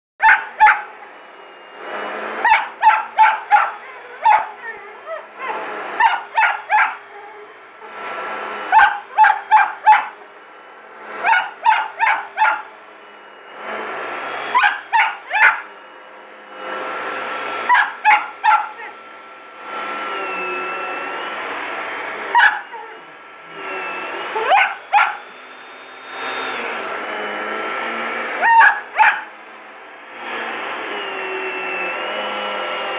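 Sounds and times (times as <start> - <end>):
dog barking: 0.2 - 0.9, 2.4 - 7.4, 8.7 - 10.2, 11.2 - 12.7, 14.5 - 15.7, 17.7 - 19.0, 22.3 - 23.0, 24.4 - 25.3, 28.4 - 29.3
vacuum cleaner running: 0.2 - 32.9.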